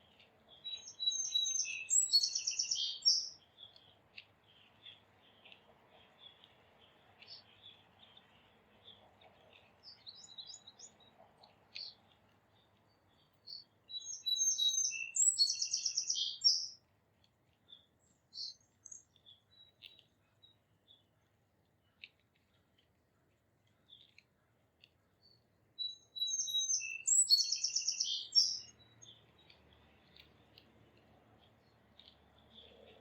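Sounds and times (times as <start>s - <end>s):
bird trilling song: 0.0s - 12.0s, 12.6s - 16.8s, 17.7s - 21.0s, 25.2s - 30.4s
songbirds chirping: 0.0s - 33.0s.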